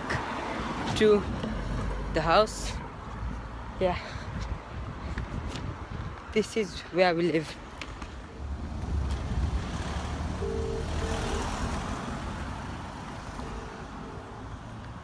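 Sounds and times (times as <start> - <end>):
vehicle passing: 8.3 - 15.0
short low beeps: 10.4 - 11.6.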